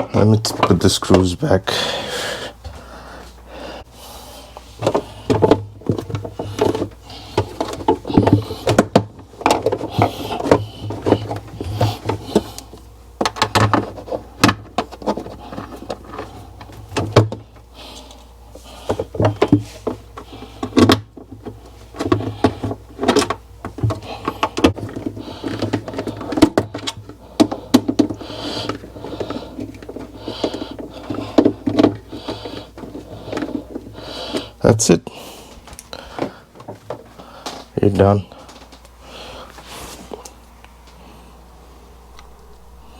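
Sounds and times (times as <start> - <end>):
low hum: 40.3 - 42.9.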